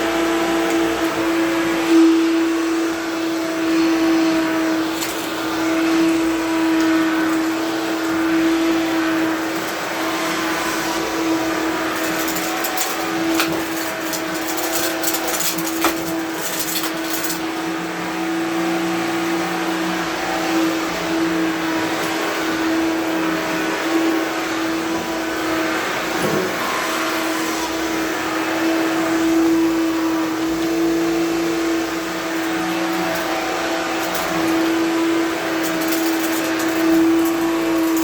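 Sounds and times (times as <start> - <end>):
vacuum cleaner humming: 0.0 - 38.0
crackling of debris pickup: 11.0 - 17.6, 32.3 - 38.0.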